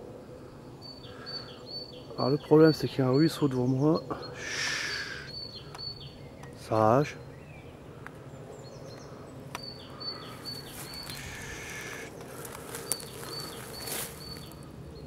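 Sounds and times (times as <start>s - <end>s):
songbird calling high notes: 0.8s - 7.7s, 9.6s - 12.2s, 12.8s - 14.6s
rustling in dry brush: 10.2s - 14.7s.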